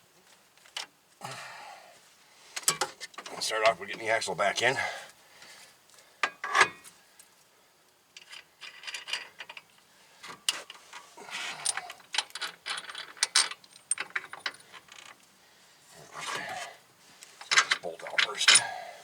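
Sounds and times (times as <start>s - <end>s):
metal tools clanking and scraping: 6.3s - 6.9s, 10.7s - 15.0s, 17.4s - 18.9s.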